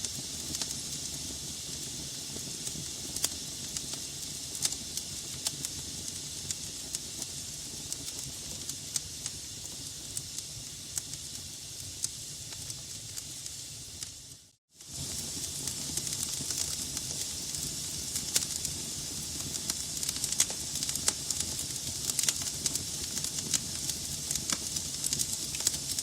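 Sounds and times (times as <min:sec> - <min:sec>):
fire hissing and rumbling: 0:00.0 - 0:26.0
wood crackling and popping: 0:02.6 - 0:07.3, 0:14.8 - 0:26.0.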